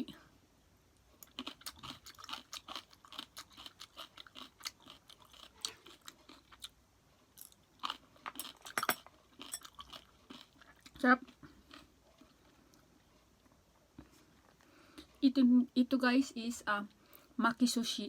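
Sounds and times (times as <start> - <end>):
person chewing crunchy food: 1.2 - 15.0.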